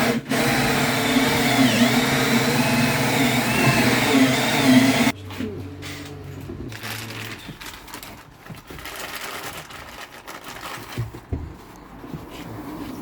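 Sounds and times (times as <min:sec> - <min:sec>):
electric drill running: 0:00.0 - 0:05.1.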